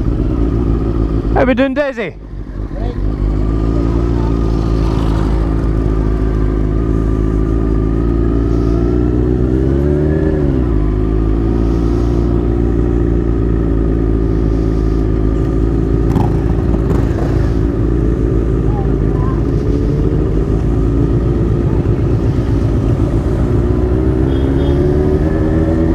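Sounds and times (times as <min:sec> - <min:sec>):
motorcycle engine running: 0:00.0 - 0:25.9.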